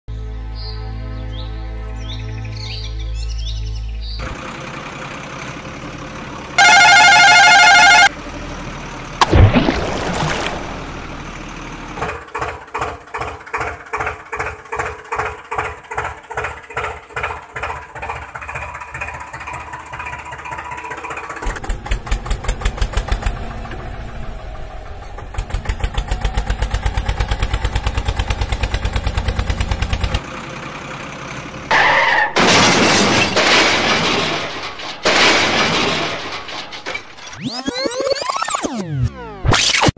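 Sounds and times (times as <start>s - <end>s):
engine running steadily: 4.0s - 31.8s
loud noise: 6.6s - 8.1s
engine being started: 12.0s - 30.2s.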